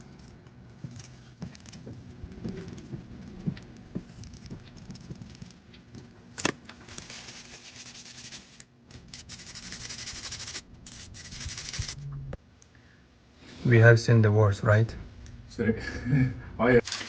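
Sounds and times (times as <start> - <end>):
brush scrubbing speaker grille: 9.2 - 12.0.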